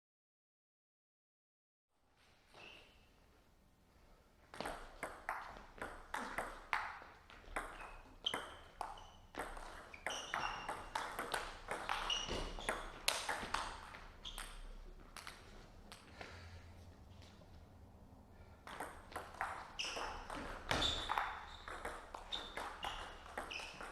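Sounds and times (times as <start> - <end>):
brief high squeaks: 2.5 - 3.1, 10.0 - 10.7, 11.9 - 12.9, 19.8 - 21.7
table tennis ball hits: 4.5 - 16.1, 18.6 - 23.9.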